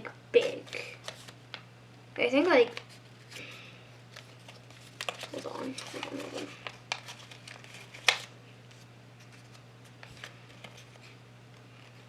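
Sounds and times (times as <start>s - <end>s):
paper crinkling and rustling: 0.4s - 1.6s, 2.6s - 12.0s
paper snap: 5.0s - 8.3s.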